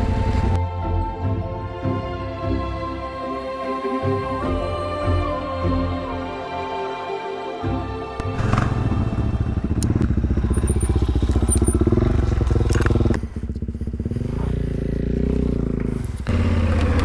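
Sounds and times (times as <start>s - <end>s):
motorcycle engine under throttle: 8.2s - 17.0s.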